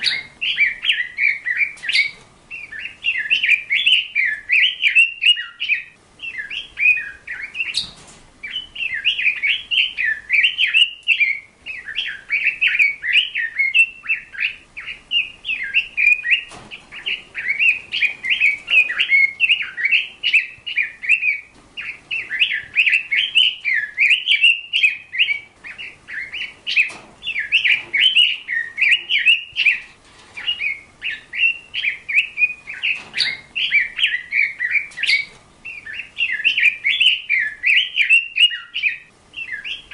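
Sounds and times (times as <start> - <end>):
small bird chirping and warbling: 0.0 - 39.9.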